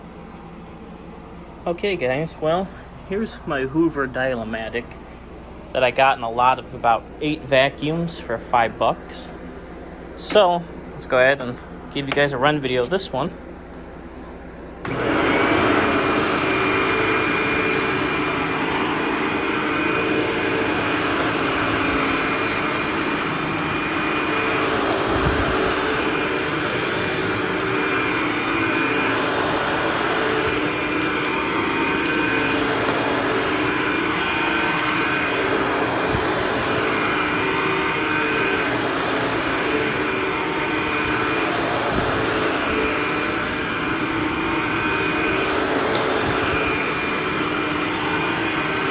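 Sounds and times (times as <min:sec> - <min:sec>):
vacuum motor whining: 0:00.0 - 0:48.9
vacuum cleaner switched on: 0:14.7 - 0:48.9.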